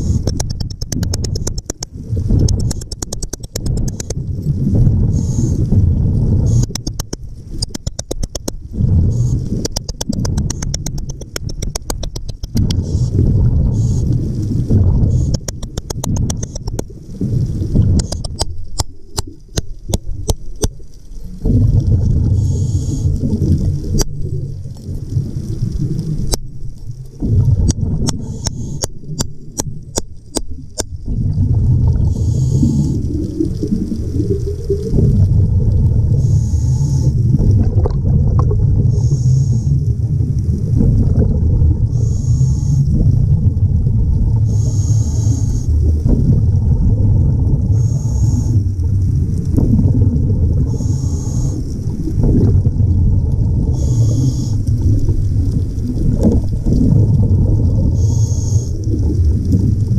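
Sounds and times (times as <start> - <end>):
sharp clicks: 0.0 - 4.2, 6.5 - 8.6, 9.2 - 13.2, 15.1 - 16.9, 18.0 - 20.8, 27.7 - 31.0
rumble of bubbles and water: 0.0 - 59.9
diver breathing through regulator: 5.0 - 5.8, 11.6 - 16.7, 22.2 - 23.2, 28.1 - 28.9, 32.0 - 33.1, 36.1 - 37.5, 38.8 - 39.9, 41.9 - 43.2, 44.4 - 45.9, 47.7 - 48.7, 50.6 - 52.0, 53.6 - 54.8, 57.8 - 58.9.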